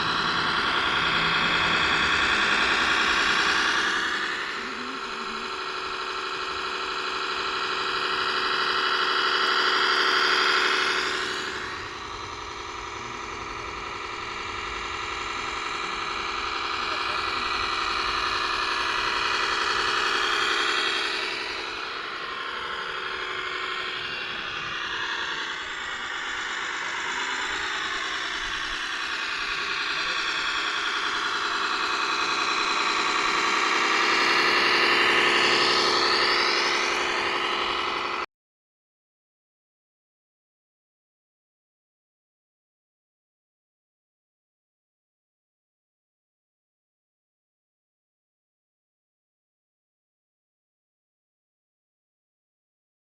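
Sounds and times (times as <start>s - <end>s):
model truck motor whine: 0.0s - 38.3s.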